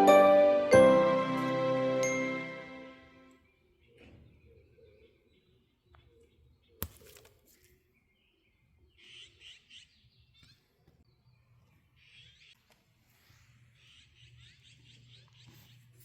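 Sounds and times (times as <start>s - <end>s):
faint songbird chirping: 7.5s - 12.7s, 13.6s - 16.0s.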